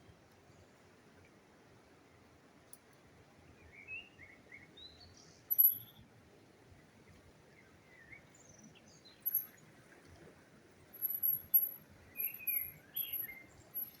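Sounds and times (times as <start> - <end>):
small birds chirping: 4.8 - 6.0, 7.8 - 9.7, 10.9 - 14.0.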